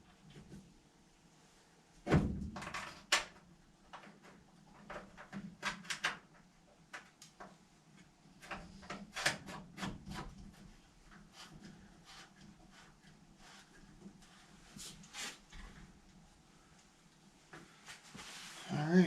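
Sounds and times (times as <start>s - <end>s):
light clicks and rattles: 2.5s - 9.4s.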